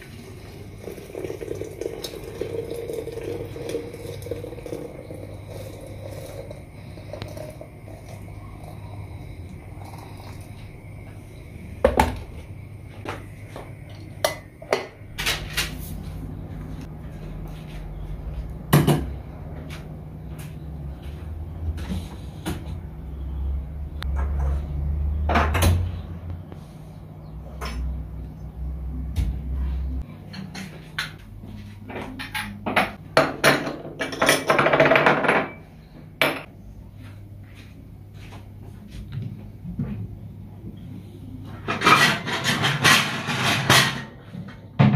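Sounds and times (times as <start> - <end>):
low steady hum: 0.0 - 24.4
dishes clattering and scraping: 14.1 - 15.8, 30.2 - 31.2, 31.9 - 35.6, 41.5 - 44.9
dishes clinking and knocking: 14.1 - 15.8, 18.7 - 19.2, 30.3 - 31.2, 31.9 - 35.6, 36.2 - 36.5, 41.6 - 44.9
dishes and utensils clinking: 30.2 - 31.2, 41.6 - 44.2.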